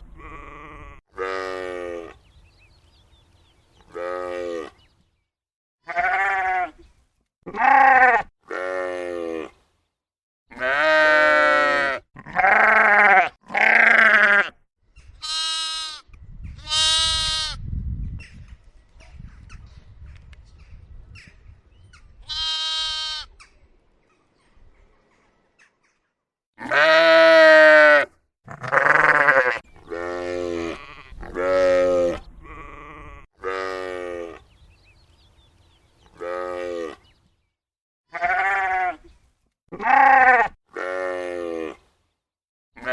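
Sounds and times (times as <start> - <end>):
sheep and lambs bleating: 0.0 - 2.2, 3.9 - 4.9, 5.8 - 6.8, 7.5 - 9.5, 10.5 - 14.6, 15.2 - 17.6, 22.2 - 23.4, 26.6 - 34.5, 36.1 - 37.1, 38.1 - 39.1, 39.7 - 41.8.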